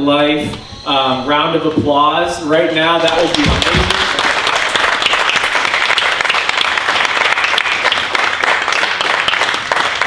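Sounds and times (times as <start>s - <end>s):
congregation applauding: 2.9s - 10.0s.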